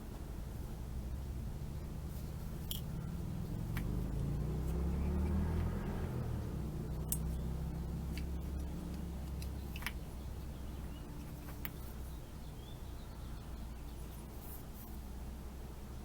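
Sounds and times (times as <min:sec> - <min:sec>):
low steady hum: 0:00.0 - 0:16.0
small parts clicking: 0:02.6 - 0:03.0, 0:07.0 - 0:07.4, 0:08.1 - 0:10.1.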